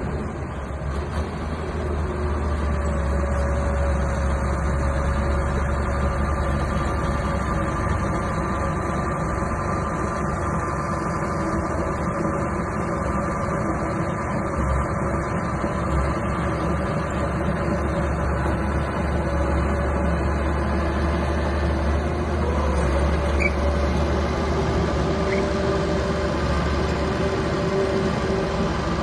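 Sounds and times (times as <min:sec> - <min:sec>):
bulldozer diesel engine drone: 0:00.0 - 0:29.0.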